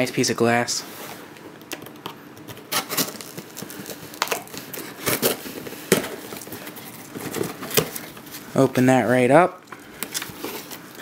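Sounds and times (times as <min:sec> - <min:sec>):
packaging crinkling and rustling: 0:01.6 - 0:08.6, 0:09.8 - 0:11.0.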